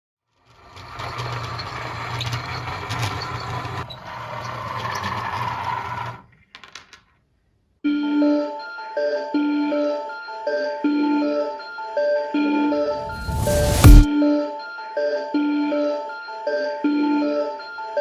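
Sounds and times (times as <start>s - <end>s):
music: 7.8s - 18.0s.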